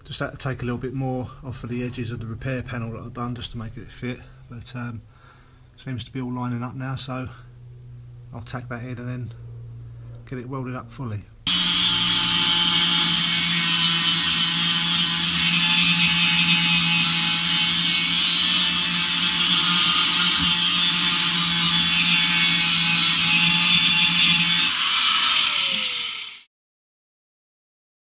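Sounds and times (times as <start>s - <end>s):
power tool grinding steel: 11.5s - 26.5s.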